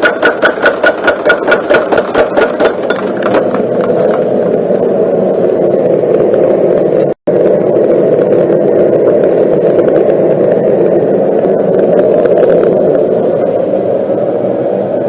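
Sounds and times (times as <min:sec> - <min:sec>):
forging hammer striking steel: 0:00.0 - 0:03.6.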